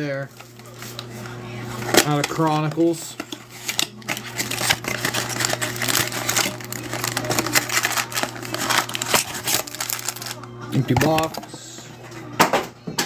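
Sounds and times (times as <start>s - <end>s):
card packs crinkling and rustling: 1.9s - 11.7s.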